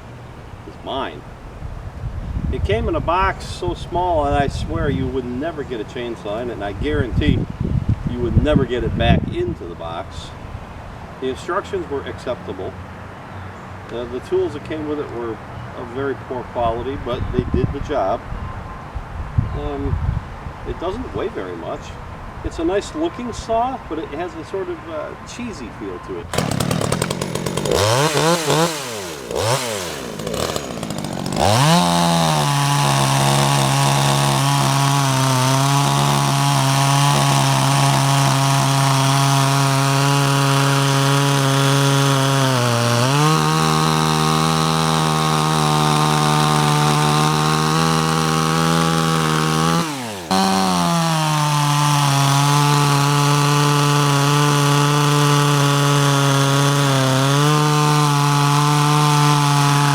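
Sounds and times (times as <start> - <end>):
chainsaw cutting wood: 26.3 - 59.9.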